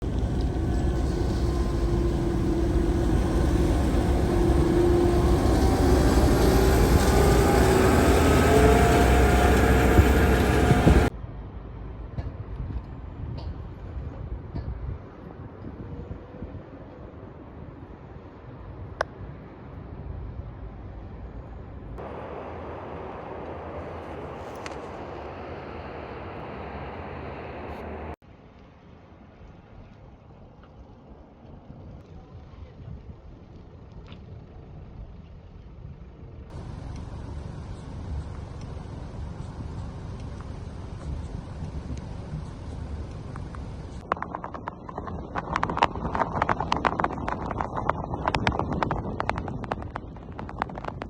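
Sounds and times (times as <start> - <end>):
steady wash of noise: 0.0 - 11.1, 22.0 - 28.2
vehicle motor running: 0.0 - 11.1, 33.6 - 51.0
city traffic noise: 0.0 - 13.2, 18.2 - 28.2, 36.2 - 44.8.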